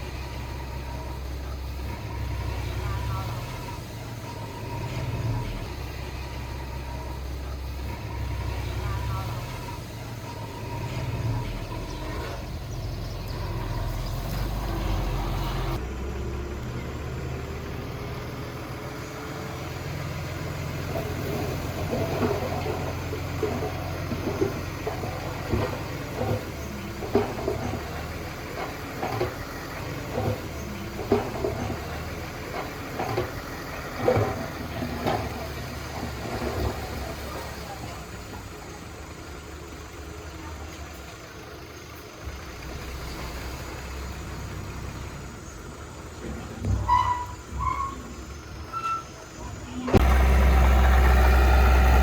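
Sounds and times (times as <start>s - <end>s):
diesel engine rumbling: 0.0s - 52.0s
knocks and clanks: 21.0s - 37.0s.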